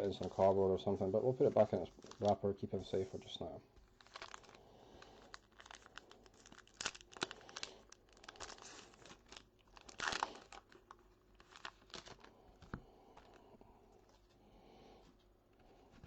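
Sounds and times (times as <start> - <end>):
wrapper crinkling and tearing: 1.9 - 2.4, 3.8 - 13.4.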